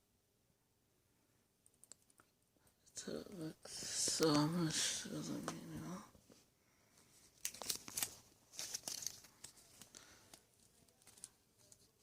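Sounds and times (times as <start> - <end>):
paper rustling and crinkling: 7.2 - 12.0.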